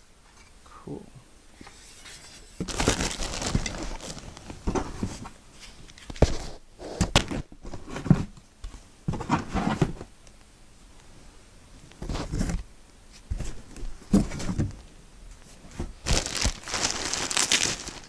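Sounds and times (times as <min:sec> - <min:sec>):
handling rustling: 0:02.6 - 0:06.5, 0:15.5 - 0:18.0.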